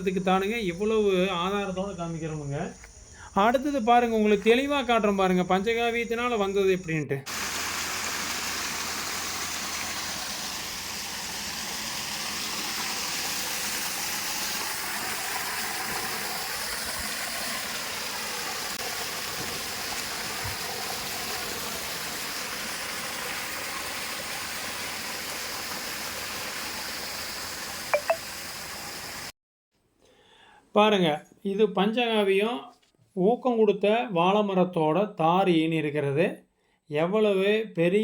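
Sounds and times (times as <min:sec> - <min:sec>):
steady outdoor hiss: 0:00.0 - 0:29.3.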